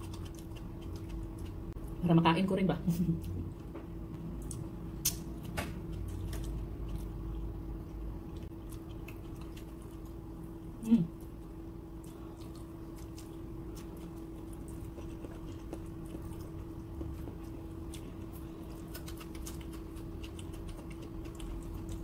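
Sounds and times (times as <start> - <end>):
chewing food: 0.0 - 2.0, 3.2 - 22.0
low hum: 0.0 - 22.0
wet mouth clicks and smacks: 4.4 - 5.3.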